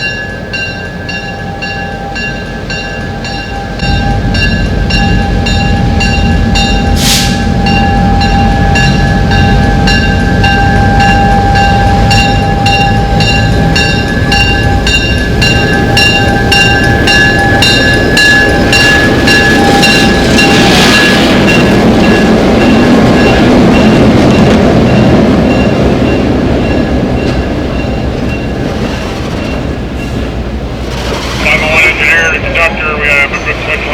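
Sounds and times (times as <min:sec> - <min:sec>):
train rumbling along rails: 0:00.0 - 0:33.9
wheels clicking over rail joints: 0:26.4 - 0:31.6.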